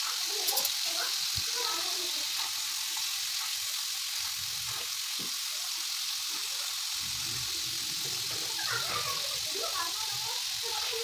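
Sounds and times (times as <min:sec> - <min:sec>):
chicken sizzling in a frying pan: 0:00.0 - 0:11.0.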